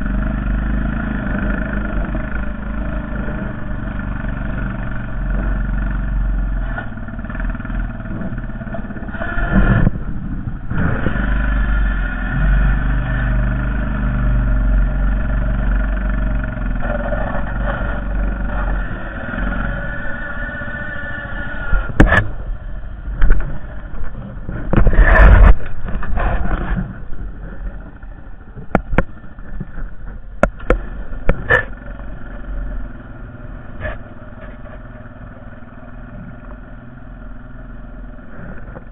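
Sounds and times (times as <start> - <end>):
atv engine running: 0.0 - 38.9
sharp knocks and clatter: 21.7 - 22.4, 23.2 - 28.0, 28.6 - 31.8.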